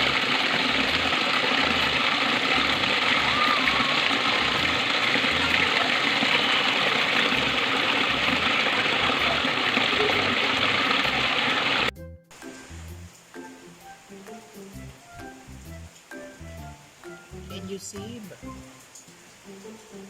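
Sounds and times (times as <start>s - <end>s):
water rushing: 0.0s - 14.0s.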